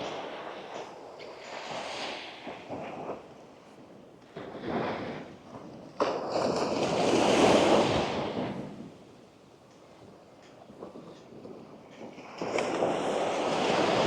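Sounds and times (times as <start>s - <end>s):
waves breaking on a beach: 12.1s - 14.0s.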